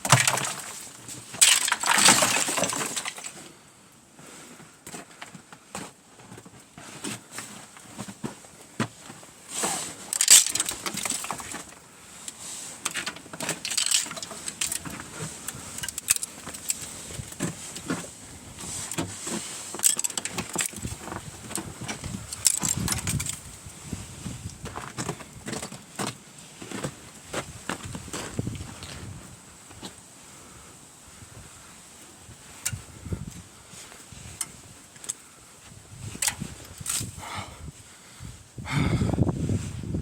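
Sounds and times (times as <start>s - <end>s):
ice pieces clinking: 0.0s - 3.4s, 10.1s - 11.7s, 12.3s - 17.4s, 19.7s - 20.9s, 21.5s - 23.4s
ice cracking and shattering: 0.0s - 3.5s, 9.7s - 17.8s, 18.9s - 23.4s.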